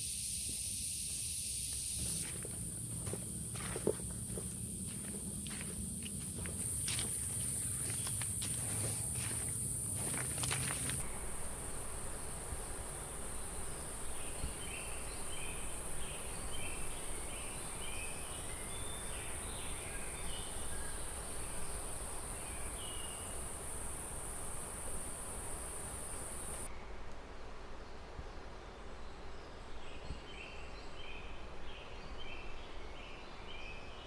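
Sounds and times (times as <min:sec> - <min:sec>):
high-pitched insect drone: 0:00.0 - 0:18.2
low steady background hiss: 0:09.3 - 0:34.0.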